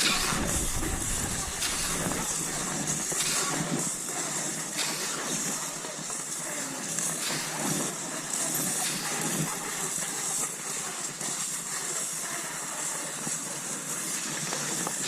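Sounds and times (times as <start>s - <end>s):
skis swishing over snow: 0.0s - 10.5s.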